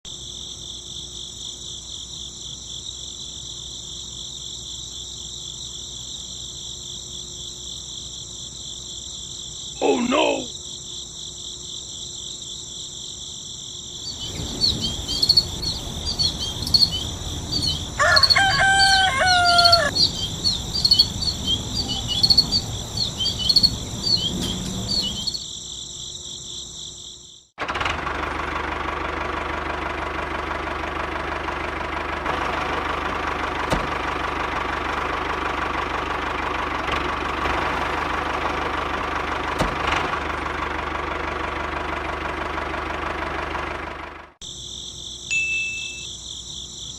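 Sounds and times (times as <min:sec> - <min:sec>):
crickets trilling: 0:00.1 - 0:27.5, 0:44.4 - 0:46.9
birds chirping: 0:14.0 - 0:25.4
rooster crowing: 0:17.6 - 0:22.8.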